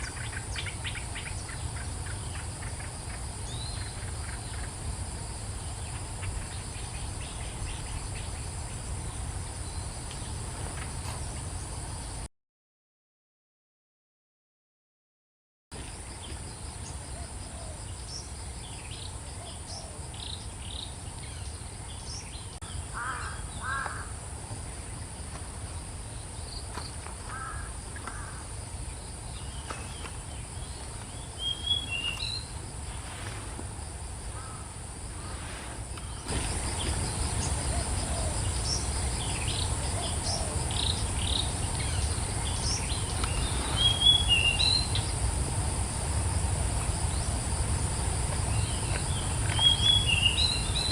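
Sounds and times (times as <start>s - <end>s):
birds calling and chirping: 0.0s - 5.0s, 29.3s - 33.3s, 34.3s - 45.3s, 48.5s - 50.9s
insect drone: 0.0s - 12.3s, 15.8s - 50.9s.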